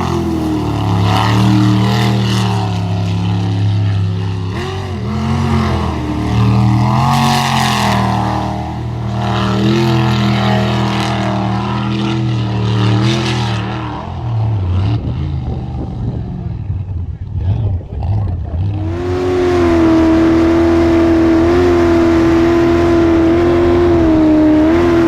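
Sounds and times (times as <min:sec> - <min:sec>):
rushing water: 0:00.0 - 0:13.8
boat engine running hard: 0:00.0 - 0:25.0
wind: 0:00.0 - 0:25.0.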